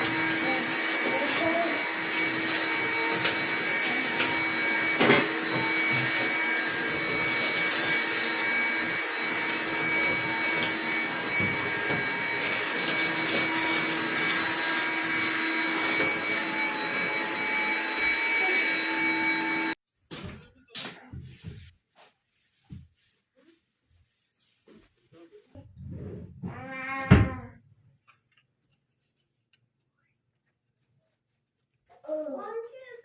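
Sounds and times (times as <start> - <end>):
electric motor whining: 0.0 - 19.8.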